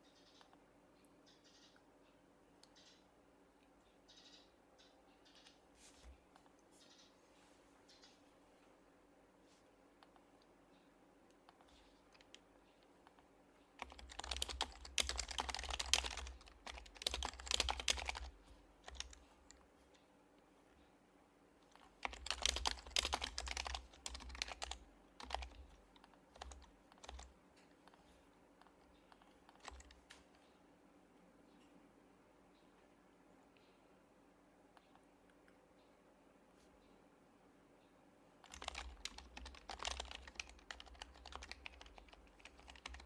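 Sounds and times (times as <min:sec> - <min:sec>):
keyboard typing: 0:11.4 - 0:12.5, 0:13.8 - 0:19.6, 0:21.7 - 0:30.5, 0:38.4 - 0:43.0.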